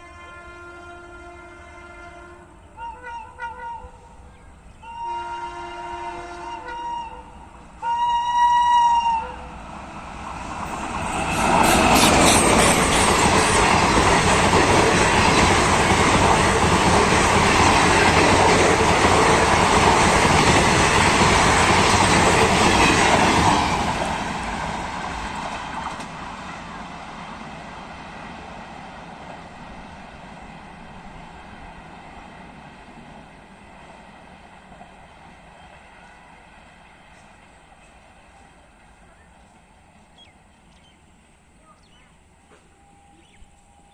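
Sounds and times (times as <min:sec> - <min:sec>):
train horn blast: 0:00.0 - 0:04.2, 0:04.8 - 0:09.6
train wheels clattering over rails: 0:10.3 - 0:27.5.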